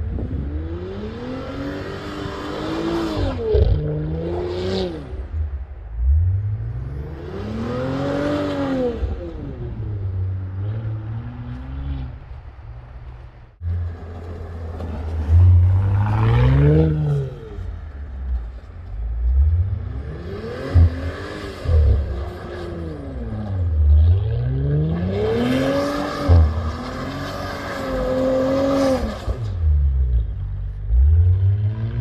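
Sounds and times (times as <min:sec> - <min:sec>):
car engine revving with burbling exhaust: 0:00.0 - 0:32.0.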